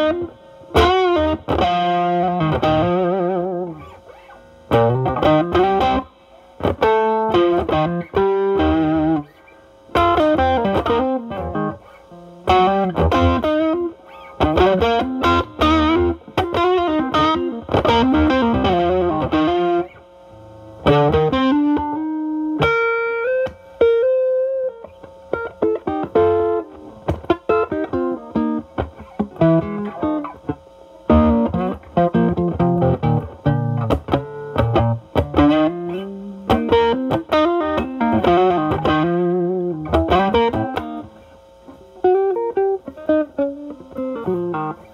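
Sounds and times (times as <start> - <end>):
overdriven electric guitar: 0.0 - 44.9.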